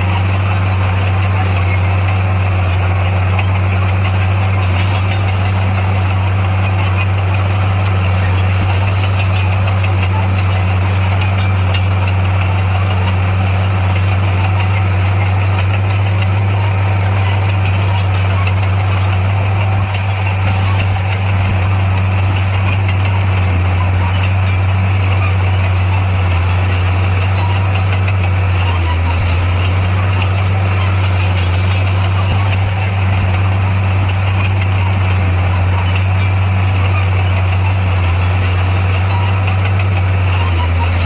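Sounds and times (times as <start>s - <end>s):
diesel engine humming: 0.0s - 41.0s.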